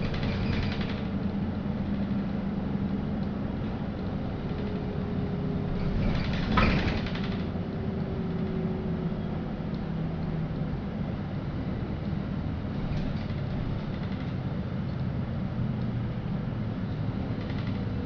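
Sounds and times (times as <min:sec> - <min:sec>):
bus engine hum: 0:00.0 - 0:18.0
road rumble: 0:00.0 - 0:18.0.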